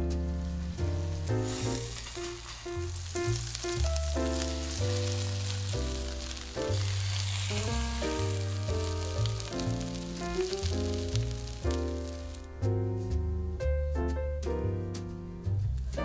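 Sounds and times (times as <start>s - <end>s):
background music: 0.0s - 16.0s
oil sizzling in a pan: 0.1s - 12.6s.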